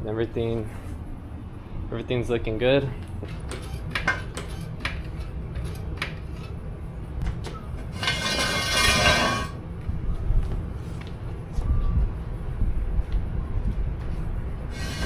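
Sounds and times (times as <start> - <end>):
metal tools clinking: 7.9 - 9.6
harsh buzzing hiss: 14.7 - 15.0.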